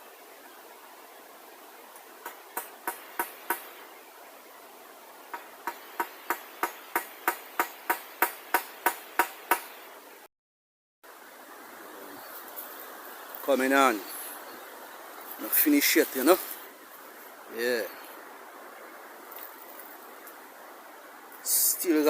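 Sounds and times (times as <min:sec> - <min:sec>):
hammer strikes: 0:02.2 - 0:03.7, 0:05.3 - 0:09.8.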